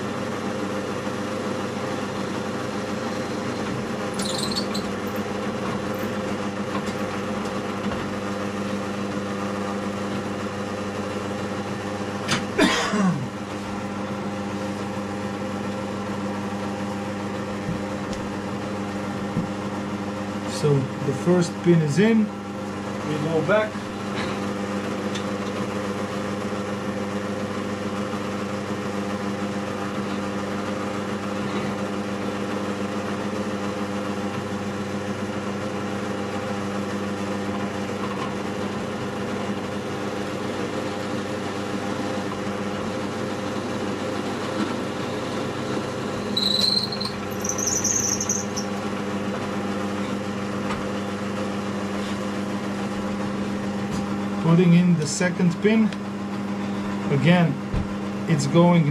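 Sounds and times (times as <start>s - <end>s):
drill press motor running: 0.0s - 58.3s
drill bit squealing: 2.9s - 5.3s, 46.2s - 48.8s.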